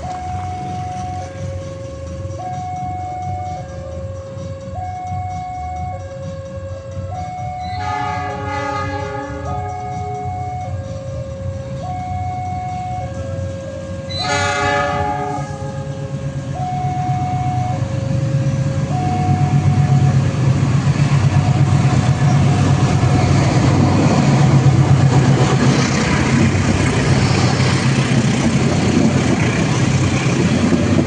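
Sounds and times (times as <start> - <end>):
two-note warning signal: 0.0 - 1.5, 2.2 - 18.1, 18.9 - 20.3
train rumbling past: 0.0 - 31.0
train horn blast: 7.6 - 10.8, 13.9 - 17.9.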